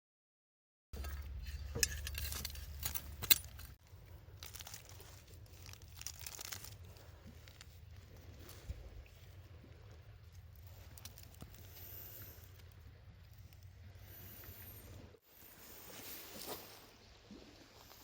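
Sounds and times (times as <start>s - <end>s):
light clinks and knocks: 1.0s - 3.8s.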